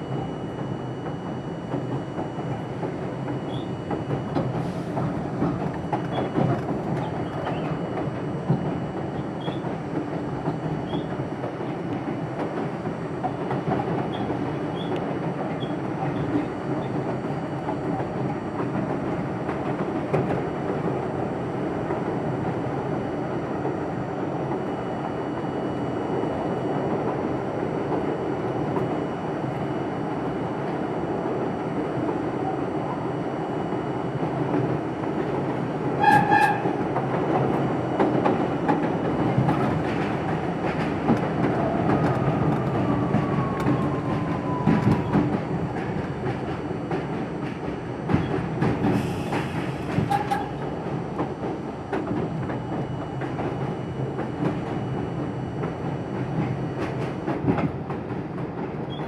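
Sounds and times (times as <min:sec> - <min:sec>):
subway train wheels rumbling: 0:00.0 - 0:59.0
clacks over rail joints: 0:01.0 - 0:20.4, 0:36.0 - 0:55.0, 0:55.6 - 0:59.0.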